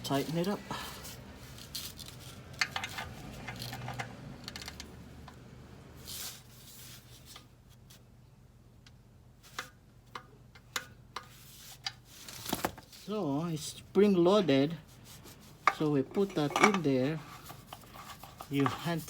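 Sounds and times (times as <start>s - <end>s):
light clicks of parts and tools: 0.2s - 5.4s, 15.6s - 19.0s.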